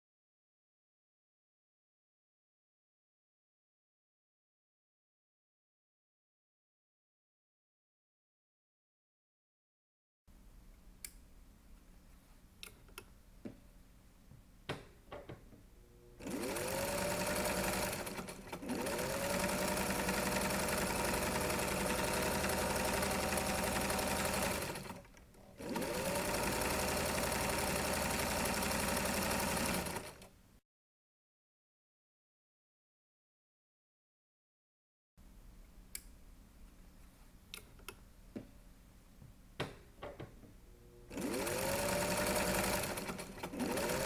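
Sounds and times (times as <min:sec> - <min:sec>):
sewing machine stitching: 0:16.2 - 0:30.3, 0:41.1 - 0:44.0.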